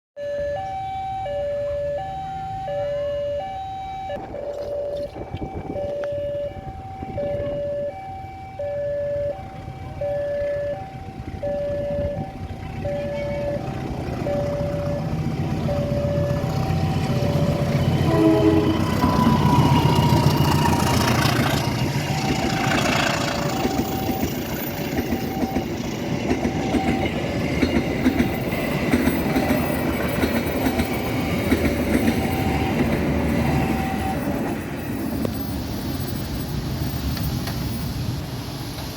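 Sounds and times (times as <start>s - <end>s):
diesel train rumble: 4.2s - 38.9s
two-note tone: 9.0s - 20.2s
train wheels clacking: 15.6s - 38.0s
train horn blast: 16.8s - 23.6s.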